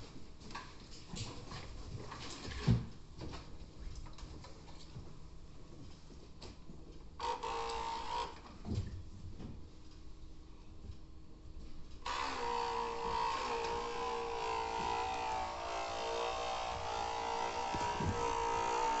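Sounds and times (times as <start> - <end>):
small electric motor whining: 12.0 - 19.0.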